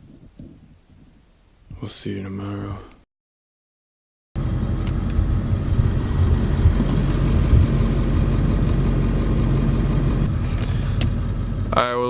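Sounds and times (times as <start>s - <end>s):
steady hum: 4.4s - 12.0s
truck engine running: 4.4s - 12.0s.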